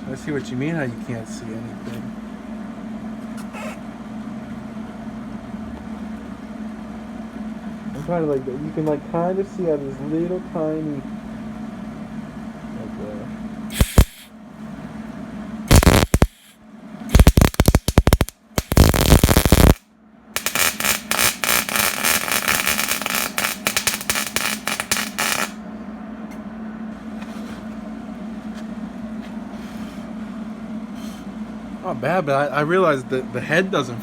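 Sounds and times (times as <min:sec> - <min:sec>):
steady low hum: 0:00.0 - 0:34.0
welding arc crackling: 0:13.7 - 0:14.3, 0:15.7 - 0:19.8, 0:20.4 - 0:25.6.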